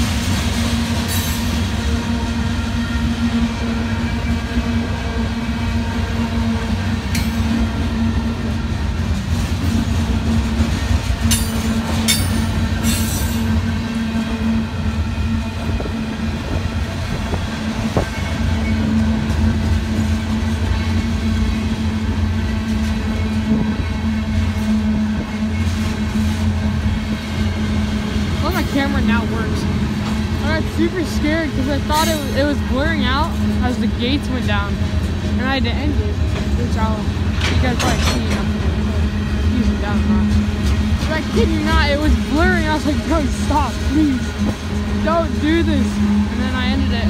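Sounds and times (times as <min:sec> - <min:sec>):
freight train wheels rumbling: 0:00.0 - 0:47.0.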